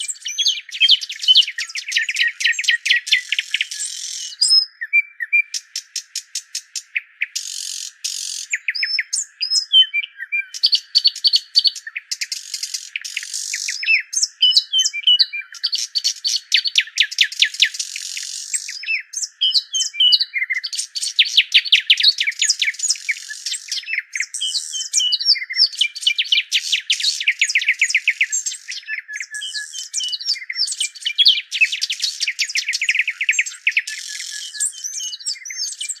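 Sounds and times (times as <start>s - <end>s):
birds chirping and singing: 0.0s - 36.0s.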